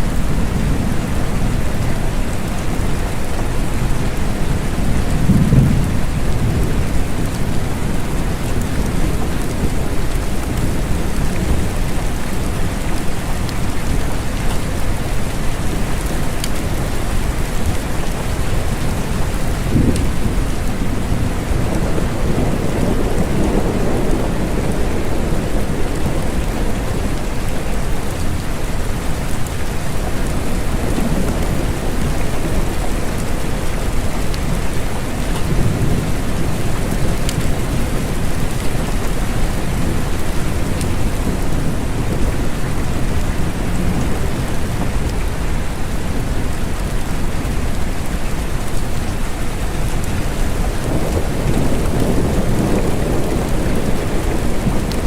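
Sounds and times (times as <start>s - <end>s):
rain falling: 0.0s - 55.0s
thunder rumbling: 0.1s - 46.2s, 49.5s - 55.0s.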